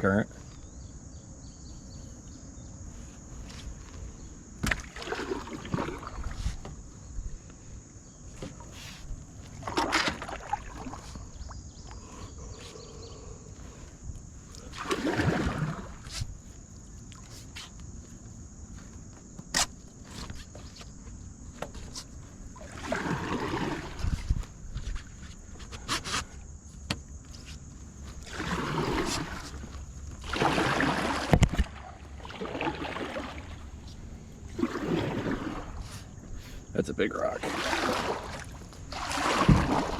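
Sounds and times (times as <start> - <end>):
kayak paddle splashing: 3.0 - 7.2, 8.3 - 13.2, 13.8 - 18.6, 19.6 - 39.9
low wash of water: 14.7 - 16.1, 22.5 - 24.5, 28.2 - 36.4, 37.3 - 39.9.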